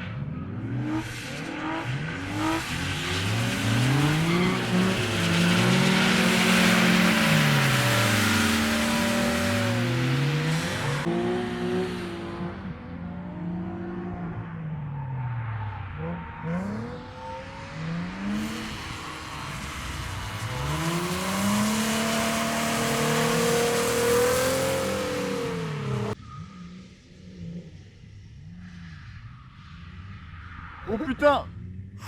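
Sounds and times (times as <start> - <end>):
car engine revving hard: 0.3 - 14.4, 15.9 - 26.2.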